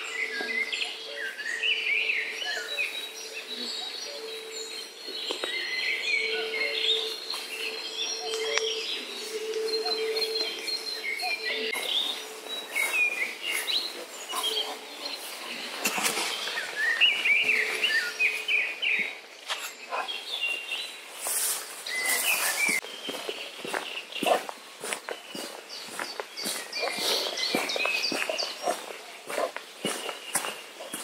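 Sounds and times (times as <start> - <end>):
songbirds chirping: 0.0 - 31.0
rustling in grass: 8.8 - 19.1, 20.1 - 31.0.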